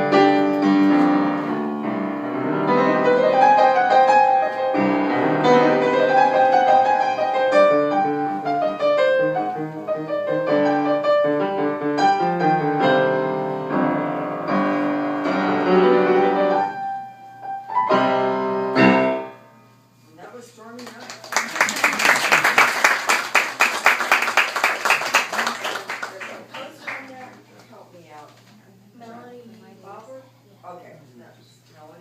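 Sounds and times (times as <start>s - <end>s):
solo piano: 0.0s - 19.4s.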